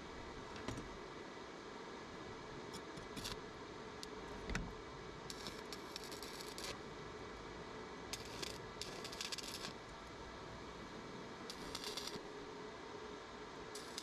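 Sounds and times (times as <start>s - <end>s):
steady background hiss: 0.0s - 14.0s
rapid crackling clicks: 11.5s - 12.2s.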